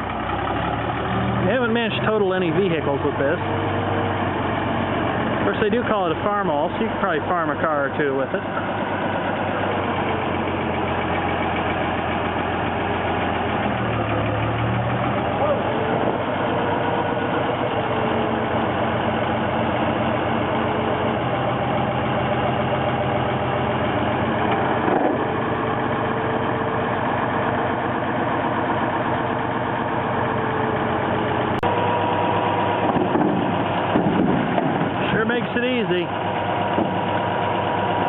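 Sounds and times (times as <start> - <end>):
tractor engine idling: 0.0 - 38.0.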